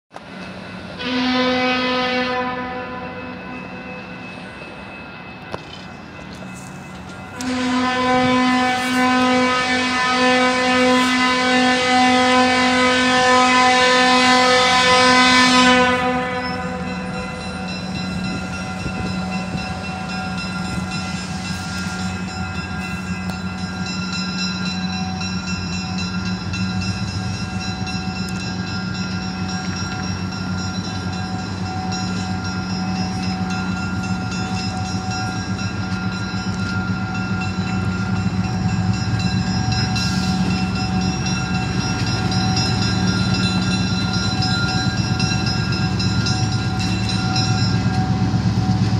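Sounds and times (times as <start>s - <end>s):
train rumbling past: 0.1s - 48.9s
train horn blast: 1.0s - 3.4s, 7.4s - 17.2s.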